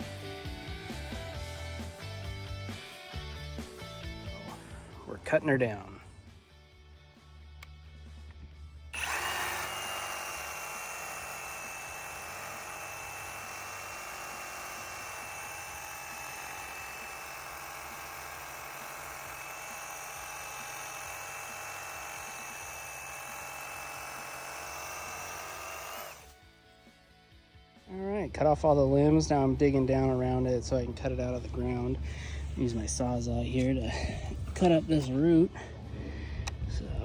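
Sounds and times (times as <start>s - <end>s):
reciprocating saw cutting wood: 9.0s - 26.4s.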